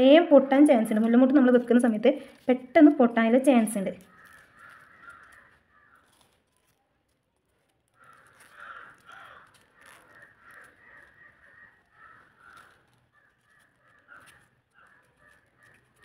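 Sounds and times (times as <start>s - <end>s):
harsh bird calls: 4.0s - 6.2s, 8.0s - 16.0s.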